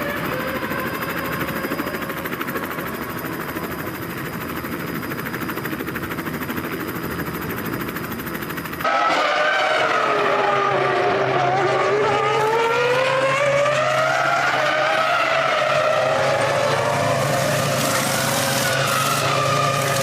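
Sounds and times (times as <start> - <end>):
race car engine: 8.8 - 20.0.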